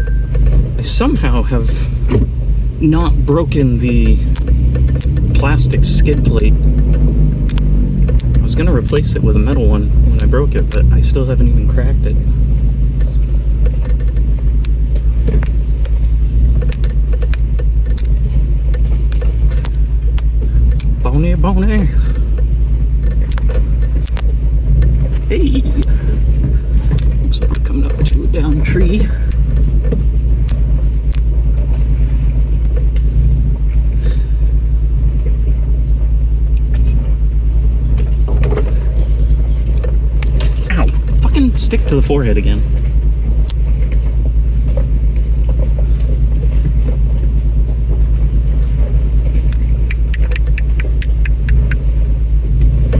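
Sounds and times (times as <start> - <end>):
truck engine low rumble: 0.0 - 52.9
clicks and knocks from truck: 2.0 - 2.4, 37.9 - 41.2.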